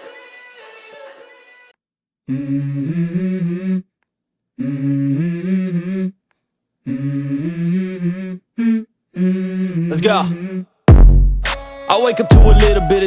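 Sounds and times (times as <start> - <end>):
person humming: 2.3 - 3.9, 4.6 - 6.2, 6.9 - 10.7.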